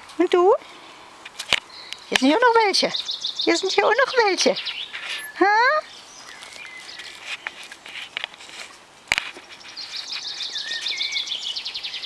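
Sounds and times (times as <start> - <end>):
birds chirping: 1.5 - 7.8, 9.3 - 12.0.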